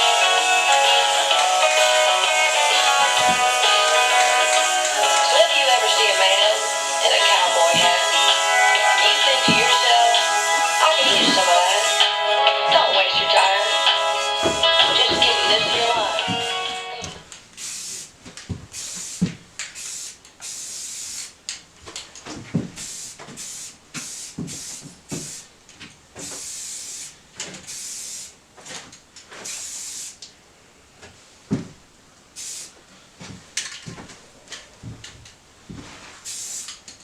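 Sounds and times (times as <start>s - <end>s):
spray-paint can hissing: 0.0s - 12.2s, 13.5s - 16.9s, 17.6s - 18.1s, 18.7s - 21.4s, 22.8s - 25.5s, 26.2s - 28.4s, 29.4s - 30.2s, 32.4s - 32.8s, 36.2s - 36.8s.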